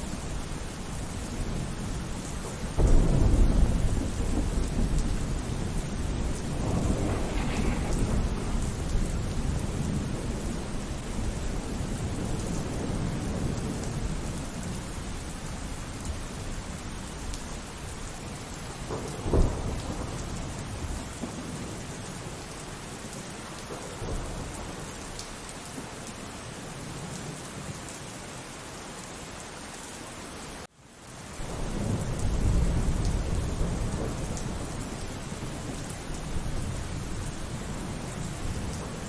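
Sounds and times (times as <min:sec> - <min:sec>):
low rumble of thunder: 0:00.0 - 0:27.4, 0:31.4 - 0:39.0
steady rain: 0:00.0 - 0:39.0
sharp thunderclap: 0:02.8 - 0:14.2, 0:18.8 - 0:21.6.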